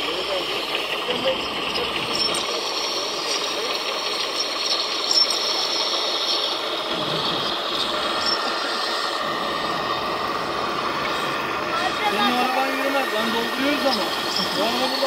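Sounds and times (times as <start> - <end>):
mechanical rattling and clicks: 0.0 - 9.0
electric motor whine: 0.0 - 15.0.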